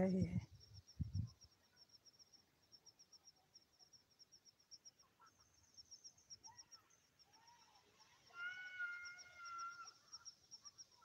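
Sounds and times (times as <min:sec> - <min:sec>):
high insect chirping: 0:00.0 - 0:11.0
faint bird calls: 0:06.4 - 0:11.0.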